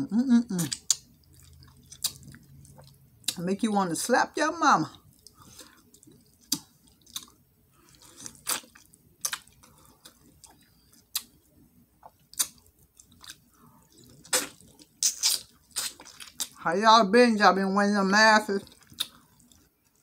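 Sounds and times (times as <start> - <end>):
person chewing with lip-smacks: 0.6 - 3.4, 4.9 - 16.6, 18.6 - 20.0.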